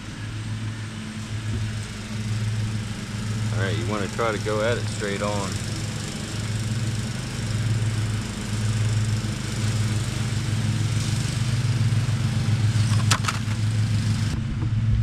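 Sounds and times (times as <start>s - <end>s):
low motor drone: 0.0s - 15.0s
sharp clicks: 12.8s - 13.6s.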